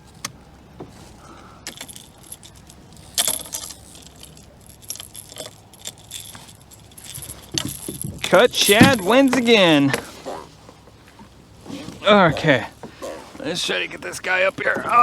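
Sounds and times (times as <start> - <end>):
fishing reel metallic clicks: 1.7 - 9.6.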